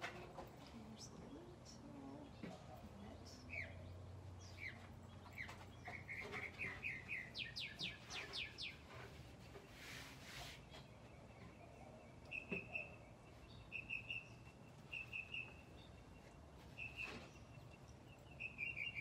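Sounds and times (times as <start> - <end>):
small bird chirping: 3.0 - 9.2, 10.7 - 19.0.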